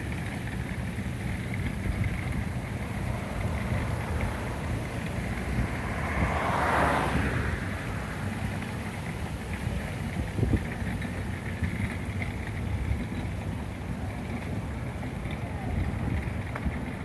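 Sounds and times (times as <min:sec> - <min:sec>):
wind buffeting microphone: 0:00.1 - 0:17.0.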